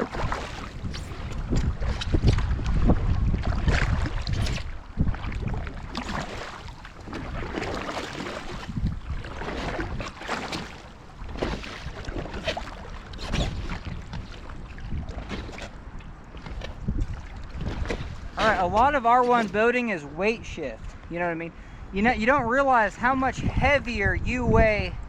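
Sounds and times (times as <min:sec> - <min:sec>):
paddle strokes splashing in water: 0:00.0 - 0:19.7
wind buffeting microphone: 0:00.0 - 0:25.0.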